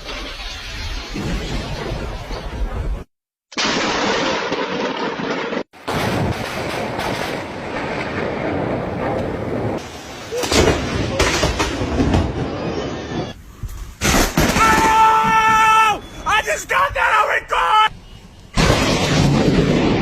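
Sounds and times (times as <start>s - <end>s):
rolling thunder: 0.0s - 13.4s, 18.6s - 20.0s
loud thunder cracks: 3.6s - 12.7s, 14.0s - 15.8s, 18.6s - 20.0s.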